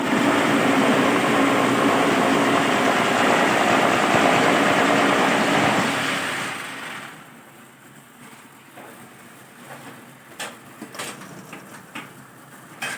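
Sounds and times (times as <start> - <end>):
block making machine drone: 0.0 - 6.6.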